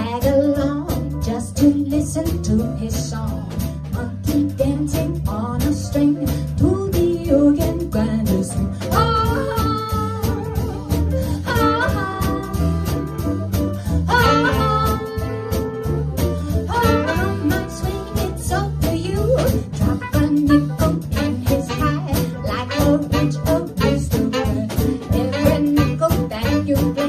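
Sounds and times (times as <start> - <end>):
swing jazz band playing: 0.0 - 27.0.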